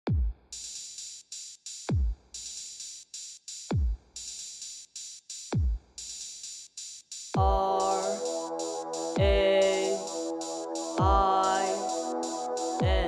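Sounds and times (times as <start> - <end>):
deep booming kick drums: 0.0 - 0.5, 1.9 - 2.3, 3.7 - 4.1, 5.5 - 5.9, 7.4 - 7.6, 11.0 - 11.3, 12.8 - 13.0
hissy high-pitched percussion: 7.4 - 13.0.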